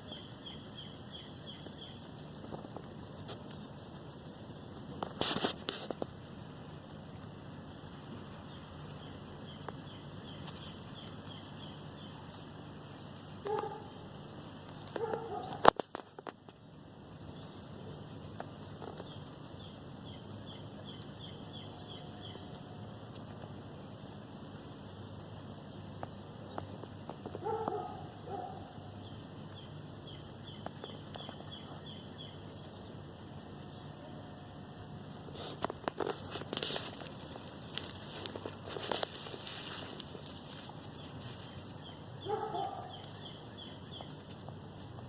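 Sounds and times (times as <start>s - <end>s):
small bird calling: 0.0s - 45.0s.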